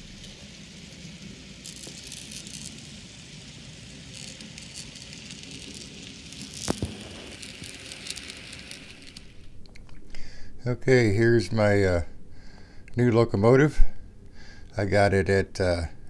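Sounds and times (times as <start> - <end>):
wheels clicking on rails: 0.0 - 9.4
model train rumbling: 0.0 - 9.5.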